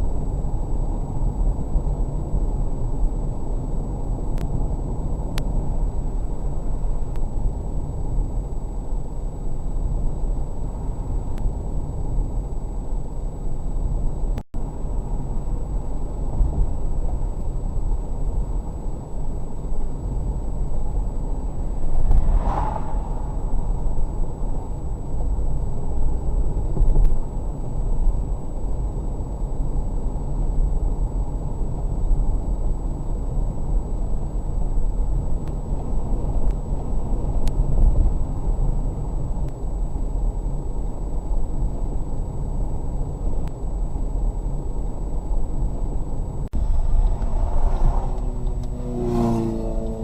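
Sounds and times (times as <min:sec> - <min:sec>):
car driving rumble: 0:00.0 - 0:50.0.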